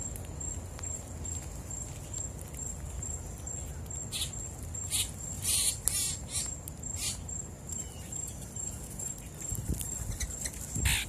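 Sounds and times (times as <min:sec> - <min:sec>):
pulsing insect trill: 0:00.0 - 0:11.0
harsh bird calls: 0:04.1 - 0:07.2, 0:10.1 - 0:11.0.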